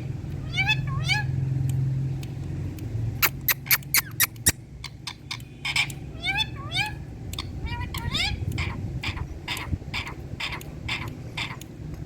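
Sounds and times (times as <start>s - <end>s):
sharp clicks: 1.6s - 6.0s.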